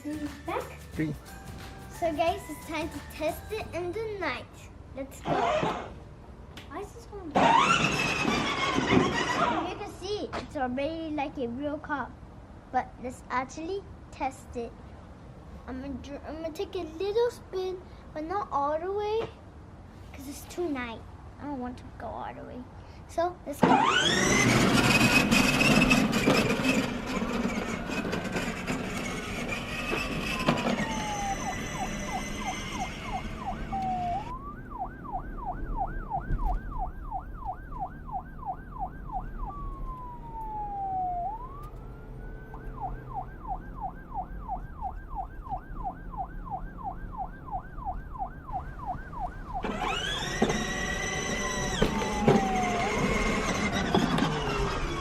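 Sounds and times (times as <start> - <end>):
electronic police siren: 23.8 - 55.0.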